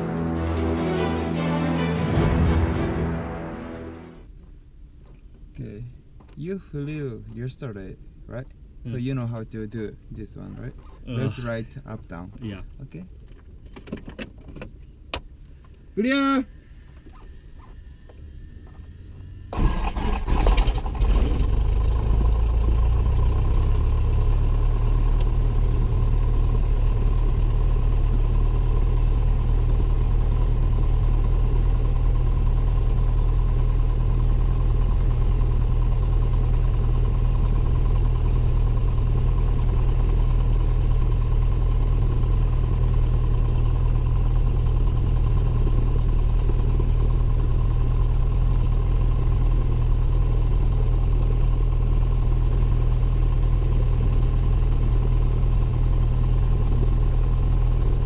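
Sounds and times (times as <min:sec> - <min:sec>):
aircraft engine starting and idling: 0:00.0 - 0:04.3, 0:16.5 - 0:58.0
starter cranking engine: 0:19.5 - 0:24.4.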